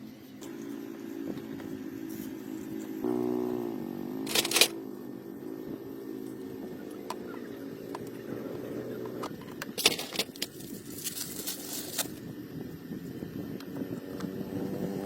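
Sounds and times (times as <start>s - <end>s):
motor humming: 0.0s - 15.0s
rattling: 9.3s - 12.2s.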